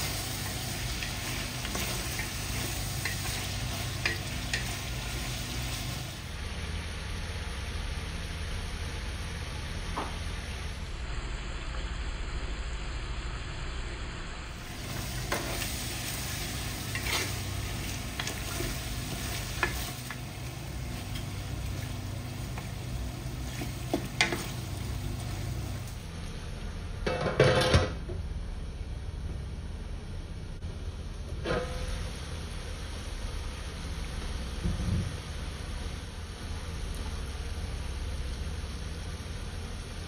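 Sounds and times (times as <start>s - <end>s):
chicken sizzling in oil: 0.0s - 6.7s, 14.6s - 26.1s
spatula scraping metal pot: 16.8s - 19.9s.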